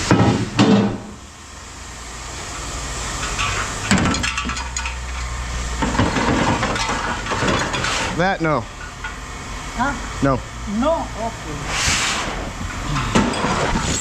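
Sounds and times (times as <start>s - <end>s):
low hum of machinery: 0.0s - 14.0s
scrap metal clanking: 3.2s - 9.2s, 11.7s - 14.0s.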